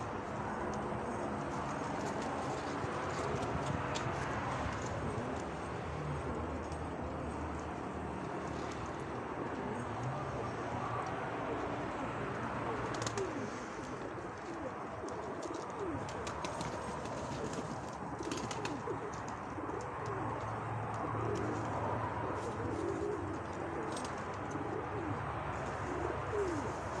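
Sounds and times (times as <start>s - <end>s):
pigeons cooing: 1.0s - 7.4s, 8.6s - 27.0s.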